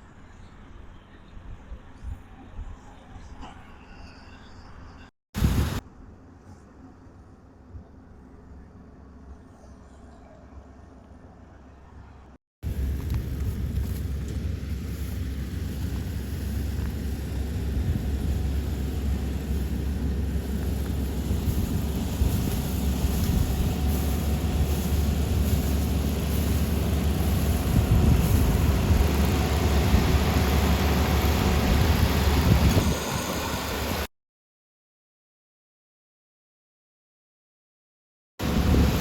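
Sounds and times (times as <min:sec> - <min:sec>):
combine harvester engine rumble: 0:12.6 - 0:34.1, 0:38.4 - 0:39.0.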